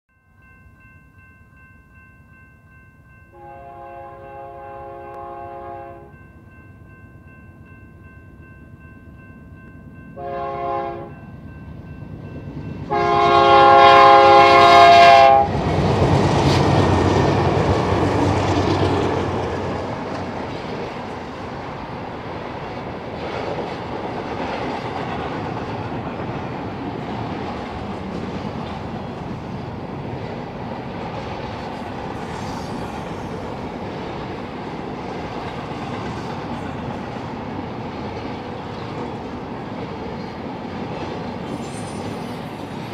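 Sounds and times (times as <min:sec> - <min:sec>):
locomotive air horn: 0:03.4 - 0:06.2, 0:10.2 - 0:11.2, 0:12.9 - 0:15.5.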